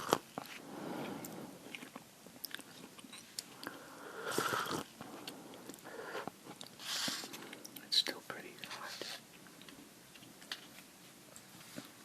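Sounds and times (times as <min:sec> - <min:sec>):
chewing noodles: 0:00.0 - 0:05.9.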